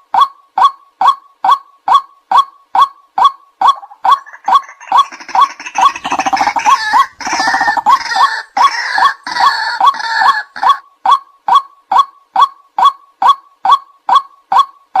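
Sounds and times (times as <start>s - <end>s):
waterhen kwak calls: 1.0s - 12.1s
rattling waterhen chatter: 3.8s - 10.6s.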